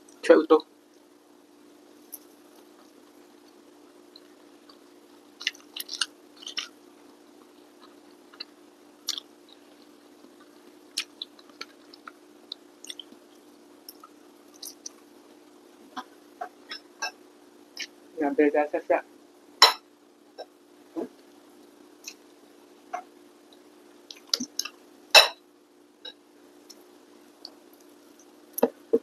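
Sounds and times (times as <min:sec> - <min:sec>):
steady low hum: 0:00.0 - 0:29.0
person chewing rice: 0:02.1 - 0:15.1.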